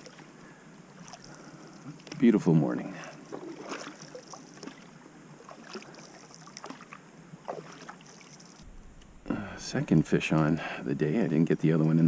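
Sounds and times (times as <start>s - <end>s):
paddle strokes in water: 0.0s - 2.2s, 2.9s - 8.6s
steady water wash: 0.0s - 8.8s.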